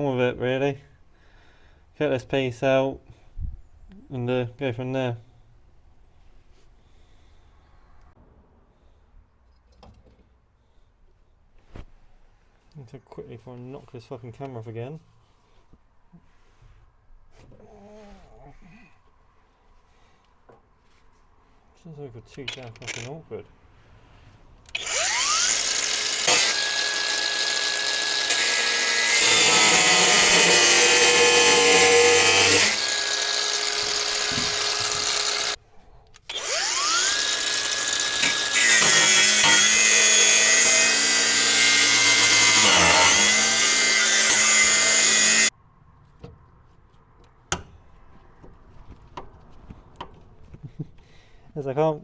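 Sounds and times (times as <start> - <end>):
angle grinder cutting steel: 22.8 - 23.1, 24.7 - 35.6, 36.3 - 45.5.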